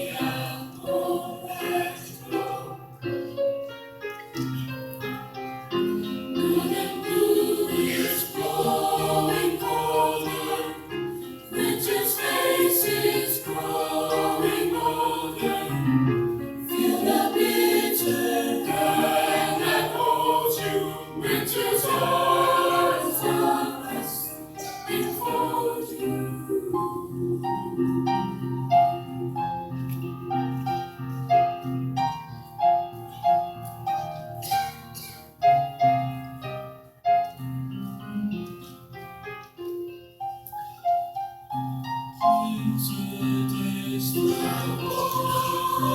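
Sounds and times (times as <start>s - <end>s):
school chorus singing: 0.0s - 3.3s, 5.9s - 29.9s, 42.2s - 45.9s
singers breathing: 24.6s - 25.1s.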